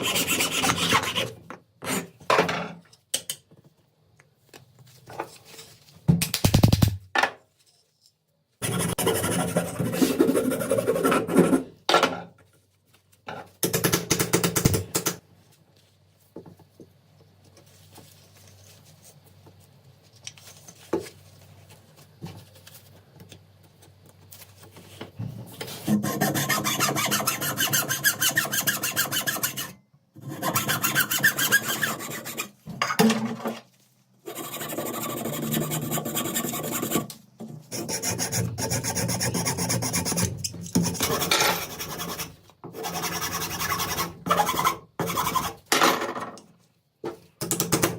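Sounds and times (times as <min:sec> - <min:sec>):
rasping abrasive strokes on metal: 0:25.9 - 0:32.5.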